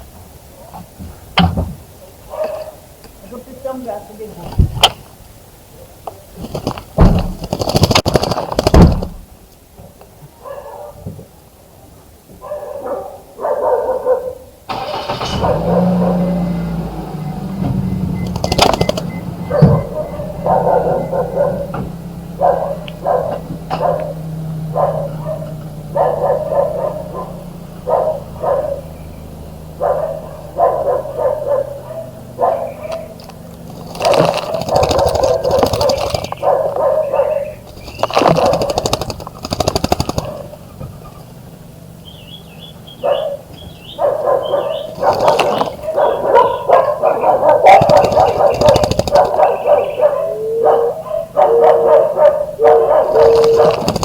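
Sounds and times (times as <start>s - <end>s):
dog barking: 2.3s - 2.8s, 10.4s - 11.2s, 12.4s - 16.5s, 18.4s - 33.2s, 33.9s - 39.0s, 40.1s - 40.6s, 42.9s - 54.0s.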